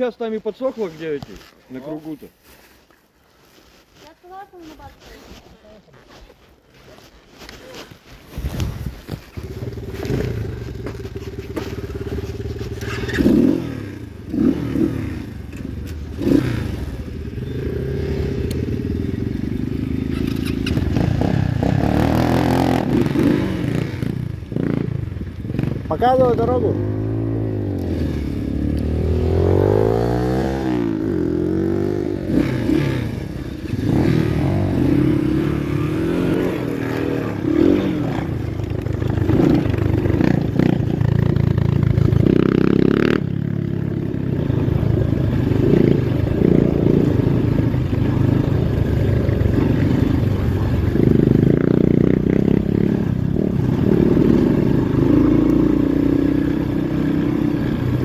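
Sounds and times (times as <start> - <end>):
pit bike engine revving: 9.4 - 58.0.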